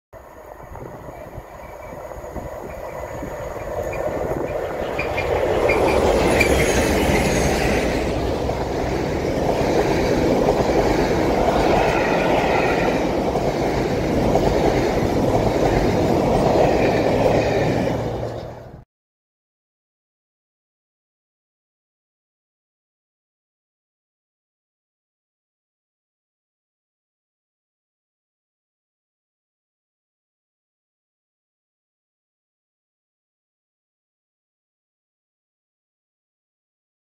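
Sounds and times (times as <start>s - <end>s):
train wheels clattering on rails: 1.3s - 18.8s.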